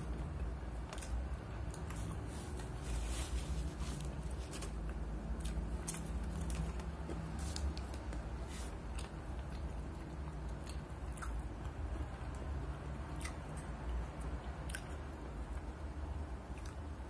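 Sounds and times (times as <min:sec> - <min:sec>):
steady low hum: 0:00.0 - 0:17.0
chewing with wet mouth clicks: 0:08.9 - 0:12.5, 0:13.1 - 0:15.7, 0:16.5 - 0:16.9.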